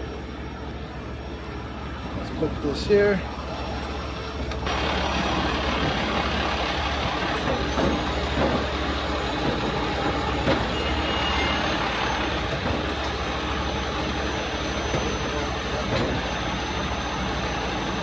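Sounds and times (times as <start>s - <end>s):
diesel truck engine under load: 0.0s - 18.0s.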